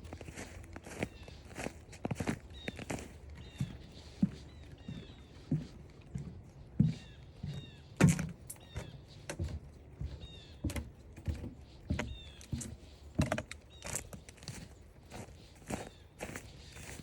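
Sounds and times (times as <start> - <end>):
footsteps on forest trail: 0.0 - 17.0.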